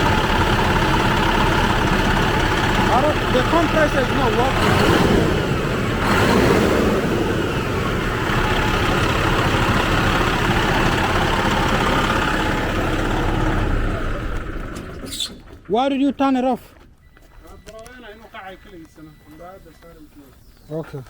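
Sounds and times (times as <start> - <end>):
truck diesel engine idling: 0.0 - 15.8.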